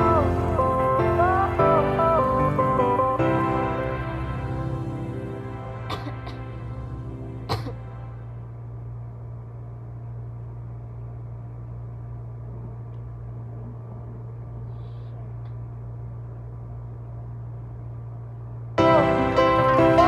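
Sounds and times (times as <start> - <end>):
low hum with faint hiss: 0.0 - 20.0.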